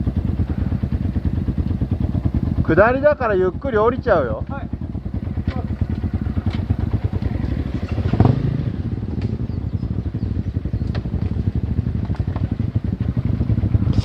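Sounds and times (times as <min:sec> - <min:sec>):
motorcycle engine at low revs: 0:00.0 - 0:14.0
knocks and clatter: 0:05.4 - 0:08.3, 0:10.8 - 0:12.7.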